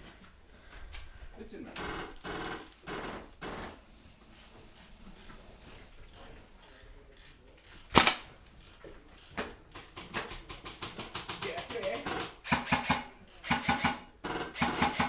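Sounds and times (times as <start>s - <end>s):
airsoft gun shots: 7.9s - 8.4s, 12.5s - 15.0s.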